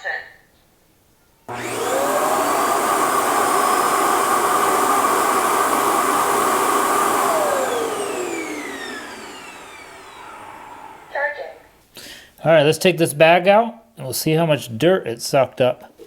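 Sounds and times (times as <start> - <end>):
suction motor running: 1.5 - 11.2.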